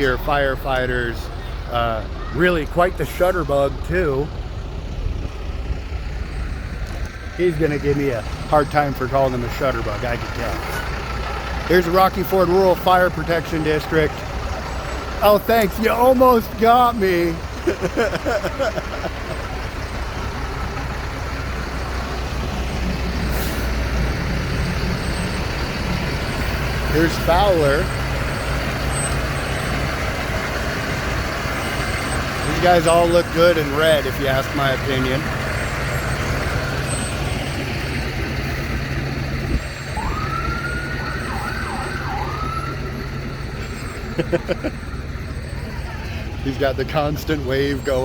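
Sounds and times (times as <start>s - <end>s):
fire truck engine running: 0.0s - 48.0s
air brakes hissing: 23.2s - 24.2s.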